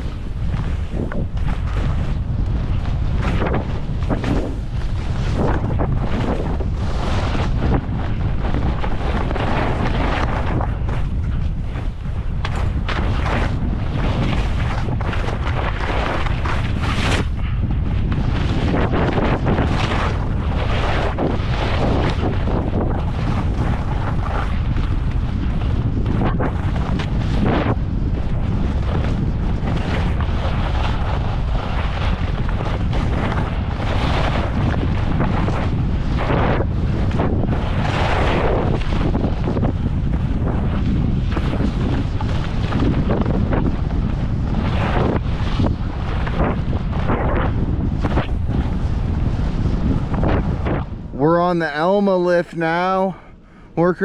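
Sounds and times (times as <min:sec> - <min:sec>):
skis scraping over snow: 0:00.0 - 0:53.2
wind buffeting microphone: 0:00.0 - 0:54.0
skis hissing and scraping on snow: 0:04.1 - 0:07.6.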